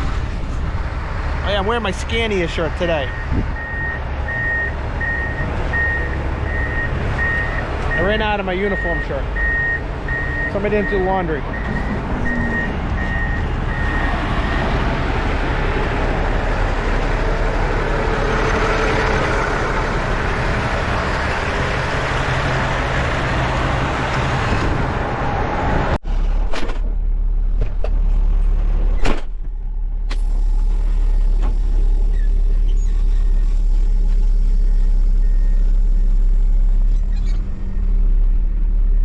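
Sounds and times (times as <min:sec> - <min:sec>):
truck engine and road noise: 0:00.0 - 0:39.0
truck reversing alarm beeping: 0:03.0 - 0:14.8, 0:32.4 - 0:36.4.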